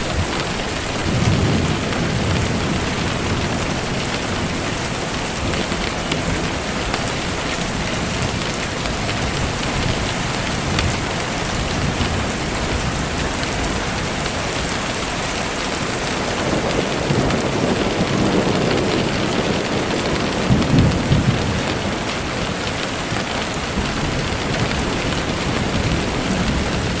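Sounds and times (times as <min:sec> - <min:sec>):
thunder rolling: 0:00.0 - 0:06.7, 0:15.8 - 0:27.0
steady rainfall: 0:00.0 - 0:27.0.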